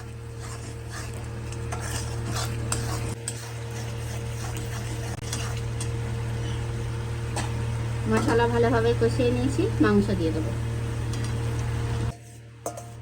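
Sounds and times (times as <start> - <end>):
spatula scraping a pan: 0.0 - 5.9, 12.1 - 13.0
food sizzling and frying: 0.0 - 13.0
steady low hum: 0.0 - 13.0.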